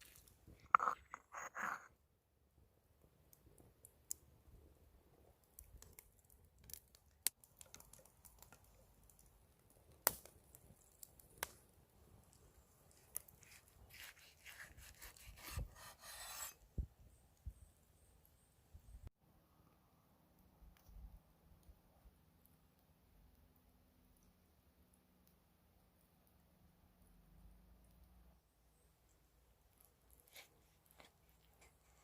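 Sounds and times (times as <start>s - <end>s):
knife sawing through steak: 13.4s - 16.6s.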